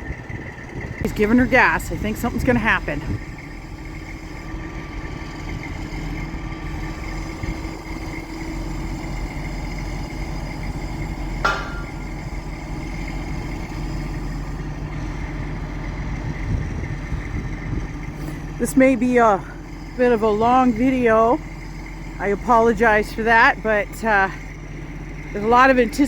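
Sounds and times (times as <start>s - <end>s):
crane engine running: 0.0s - 26.0s
sharp metal clank: 11.4s - 12.2s.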